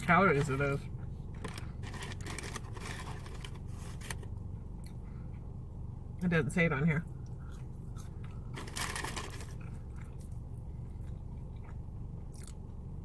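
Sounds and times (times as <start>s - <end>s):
low hum: 0.0s - 13.0s
person chewing fries: 7.2s - 12.8s.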